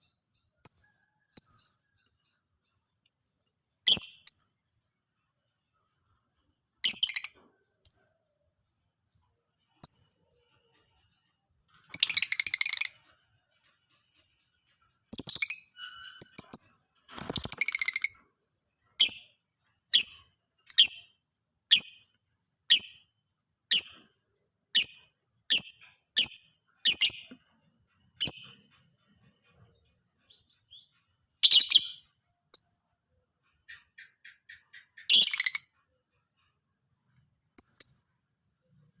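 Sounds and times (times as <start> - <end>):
lovebird chattering and chirping: 3.8 - 4.6, 6.7 - 8.2, 11.8 - 14.3, 15.1 - 18.2, 18.9 - 23.1, 23.7 - 24.1, 24.7 - 29.2, 30.0 - 32.8, 33.4 - 36.7, 37.5 - 38.2.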